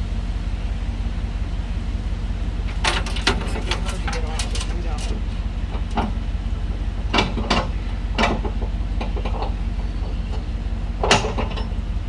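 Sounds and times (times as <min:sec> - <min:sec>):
engine idling hum: 0:00.0 - 0:12.0
sharp metal clanks: 0:02.7 - 0:06.2, 0:11.0 - 0:11.8.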